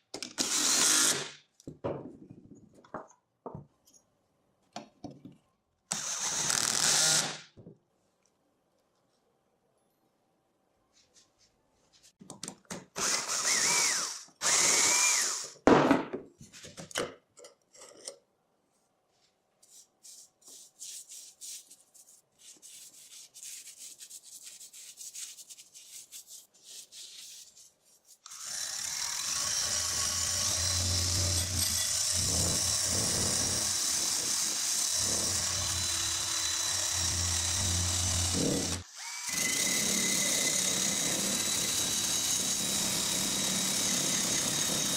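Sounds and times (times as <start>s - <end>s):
power tool whining: 28.3s - 44.9s.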